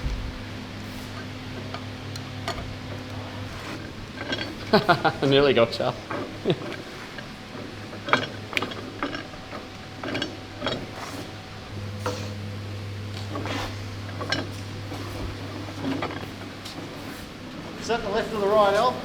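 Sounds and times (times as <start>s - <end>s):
low hum: 0.0s - 5.3s, 9.3s - 17.8s
hand tools clinking on metal: 2.5s - 12.3s, 13.2s - 17.2s.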